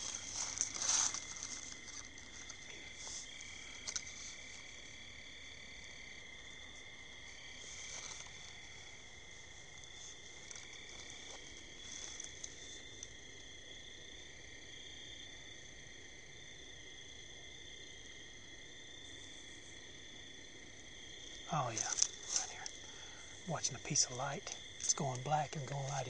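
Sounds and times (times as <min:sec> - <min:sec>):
faint rustles: 0:00.0 - 0:05.0, 0:06.6 - 0:13.2, 0:21.6 - 0:23.4
crickets trilling: 0:00.0 - 0:26.0.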